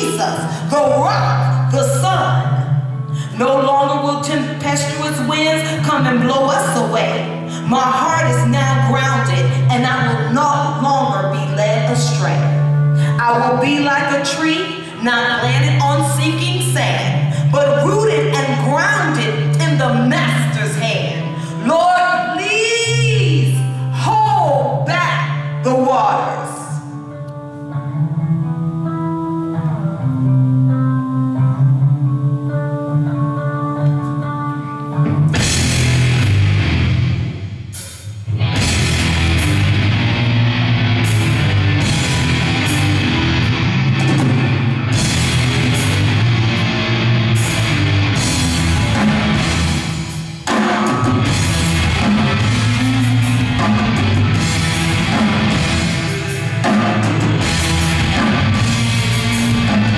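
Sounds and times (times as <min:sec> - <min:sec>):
held guitar notes: 0:26.8 - 0:59.9
steady bass line: 0:28.0 - 0:59.9
rock band with drums: 0:35.0 - 0:59.9.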